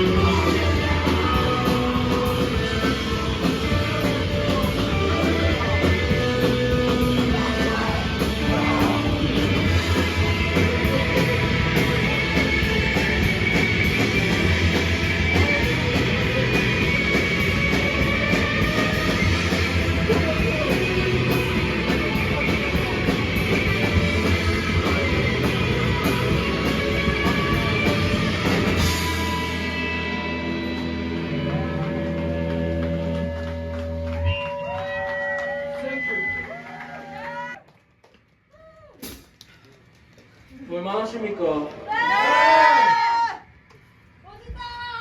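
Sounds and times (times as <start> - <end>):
drum kit: 0.0 - 34.2, 39.0 - 39.4
live rock band playing: 0.0 - 36.4
electric guitars: 0.0 - 37.6.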